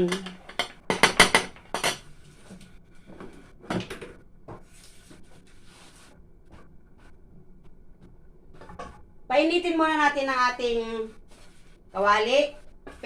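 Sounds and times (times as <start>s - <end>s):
cookware knocking: 0.0s - 2.0s.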